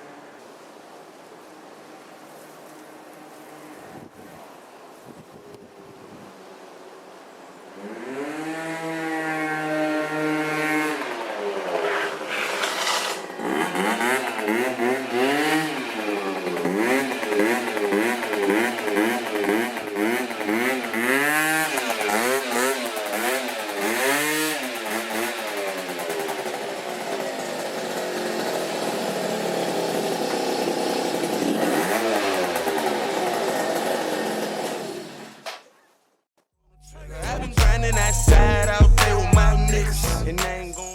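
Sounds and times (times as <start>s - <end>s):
scooter engine revving: 7.8s - 35.4s, 36.8s - 40.9s.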